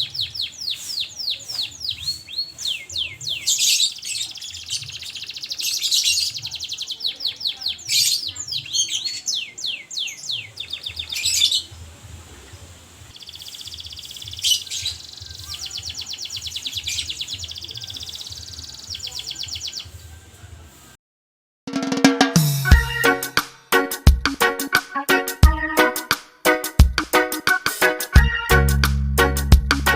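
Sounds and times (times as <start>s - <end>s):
canary singing trills: 0.0s - 11.9s, 12.7s - 20.0s.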